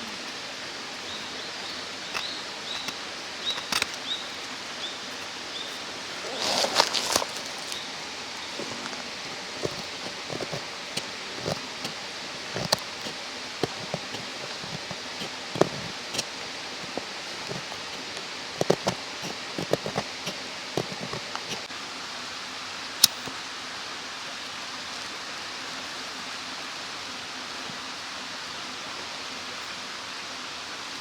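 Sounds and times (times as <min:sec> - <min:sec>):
rustling: 0:00.0 - 0:21.7
mountain stream rushing: 0:00.0 - 0:31.0
small sharp crackles: 0:02.1 - 0:18.0.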